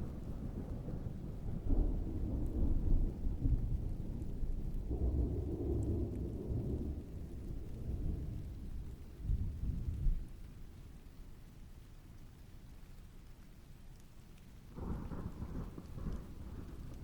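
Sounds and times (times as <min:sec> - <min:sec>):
distant thunder rolling: 0:00.0 - 0:10.4, 0:14.7 - 0:17.0
steady rain: 0:00.0 - 0:17.0.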